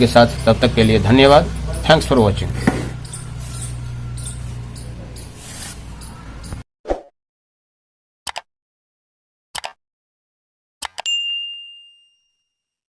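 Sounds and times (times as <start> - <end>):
bright ding ringing: 11.0 - 12.7.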